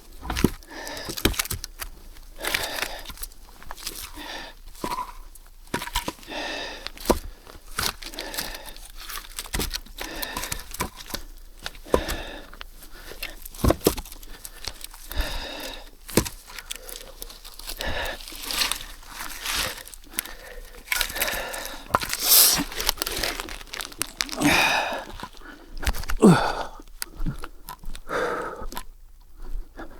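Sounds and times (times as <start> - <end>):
paper tearing and crumpling: 22.0 - 25.4.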